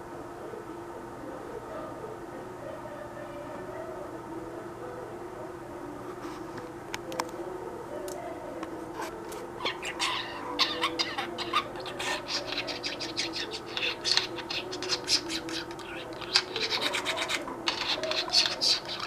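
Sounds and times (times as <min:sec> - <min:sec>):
low household hum: 0:00.0 - 0:19.0
cage bird chirping: 0:09.6 - 0:19.0.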